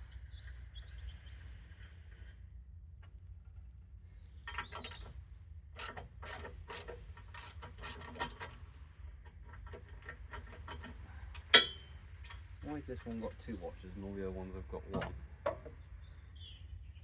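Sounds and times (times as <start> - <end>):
ratchet spanner clicking: 4.5 - 5.2, 5.8 - 8.6, 9.3 - 12.6.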